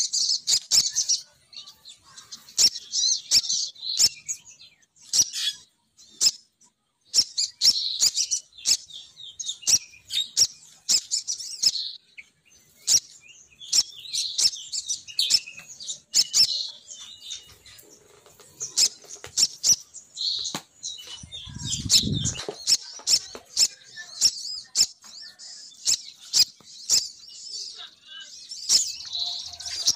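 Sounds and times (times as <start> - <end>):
bird lure call chirps and twitters: 0.0 - 1.8, 2.4 - 6.5, 7.1 - 27.8.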